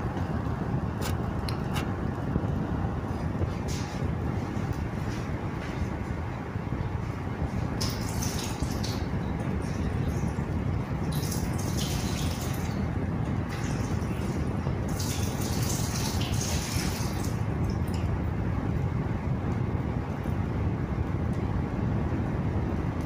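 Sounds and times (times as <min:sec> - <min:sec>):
gas stove low rumble: 0:00.0 - 0:23.0.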